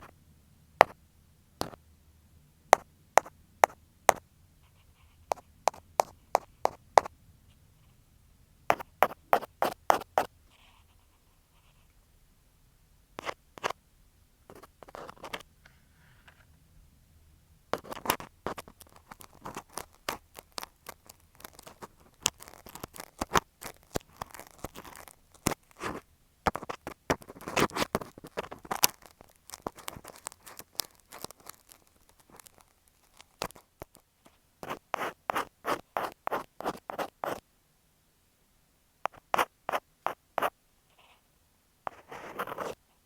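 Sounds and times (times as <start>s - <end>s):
ear pick scratching microphone: 8.7s - 10.3s, 39.1s - 40.5s, 41.9s - 42.8s.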